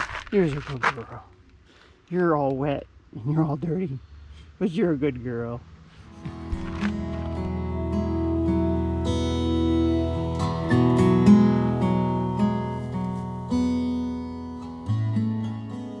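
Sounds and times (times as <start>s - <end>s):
strummed acoustic guitar chords: 6.1s - 16.0s.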